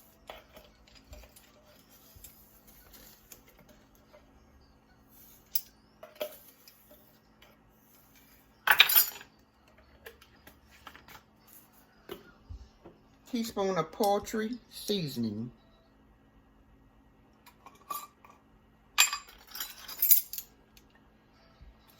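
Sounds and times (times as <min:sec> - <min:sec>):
utensils clattering: 0:00.0 - 0:03.9, 0:08.2 - 0:09.3, 0:19.0 - 0:20.5.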